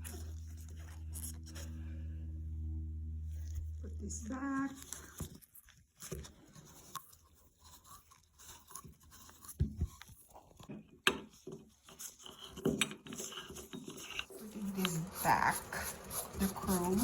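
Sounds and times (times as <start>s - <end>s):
faucet parts clicking and scraping: 6.6s - 17.0s.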